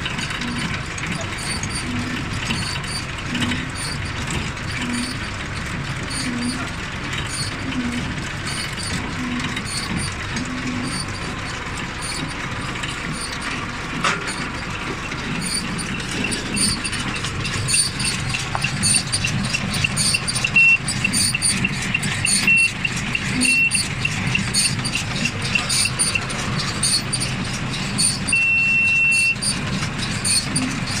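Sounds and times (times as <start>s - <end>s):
short high beeps: 22.4s - 22.8s, 28.3s - 29.4s
longer beep: 28.3s - 29.4s.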